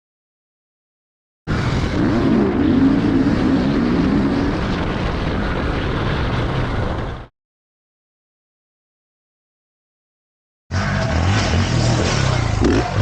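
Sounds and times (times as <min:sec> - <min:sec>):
dirt bike engine revving: 0:01.5 - 0:04.9, 0:10.7 - 0:13.0.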